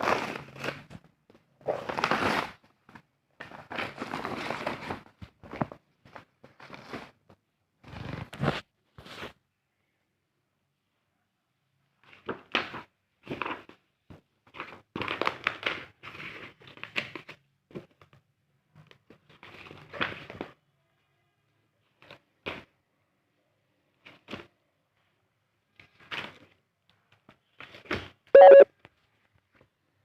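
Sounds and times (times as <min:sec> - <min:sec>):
packaging crinkling and tearing: 0:01.7 - 0:02.6.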